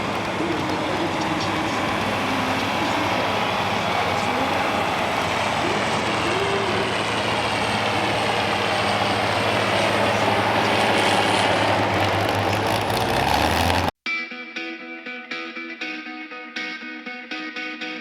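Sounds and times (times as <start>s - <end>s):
vehicle engine running hard: 0.0s - 14.0s
distorted electric guitar music: 0.0s - 18.0s.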